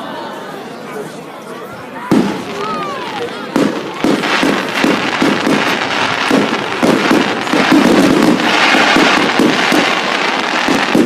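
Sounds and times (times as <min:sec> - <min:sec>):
fireworks bangs and crackles: 0:02.0 - 0:11.0.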